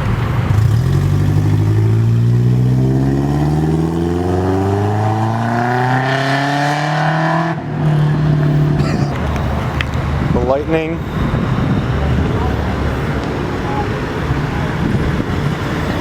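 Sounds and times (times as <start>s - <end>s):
car engine accelerating hard: 0.4s - 9.2s.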